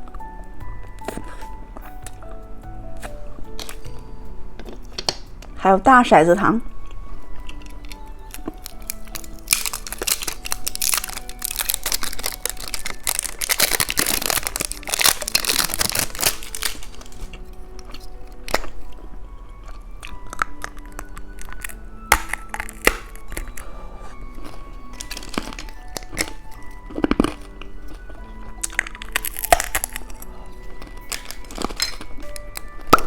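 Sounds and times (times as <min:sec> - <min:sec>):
light background music: 0:00.0 - 0:33.0
plastic wrappers crinkling: 0:06.7 - 0:33.0.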